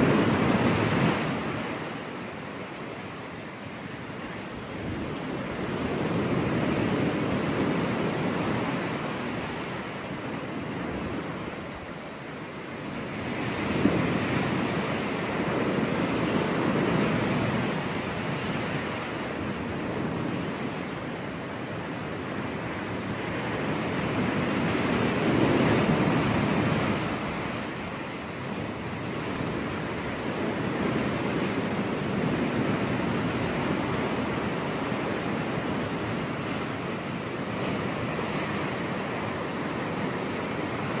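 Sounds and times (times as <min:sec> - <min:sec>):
ocean waves breaking on beach: 0:00.0 - 0:41.0.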